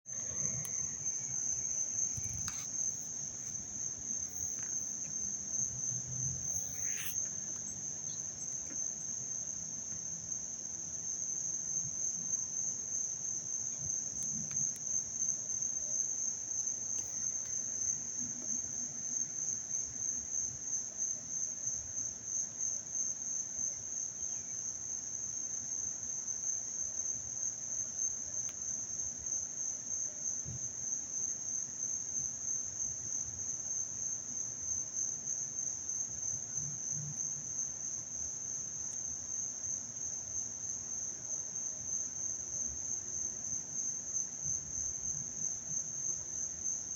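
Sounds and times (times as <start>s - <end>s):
insects trilling: 0.1s - 10.0s.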